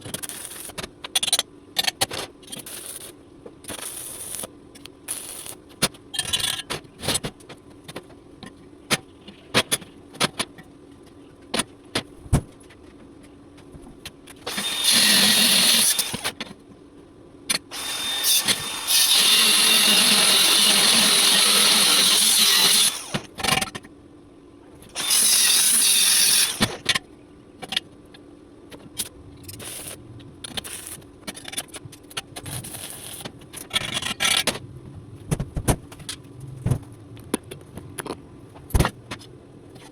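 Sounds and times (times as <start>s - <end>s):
welding arc crackling: 0.1s - 0.8s, 3.7s - 4.5s, 5.1s - 5.6s.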